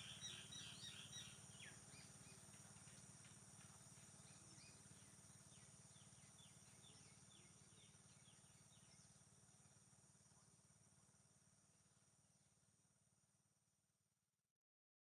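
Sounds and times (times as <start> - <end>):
high insect drone: 0.0 - 13.3.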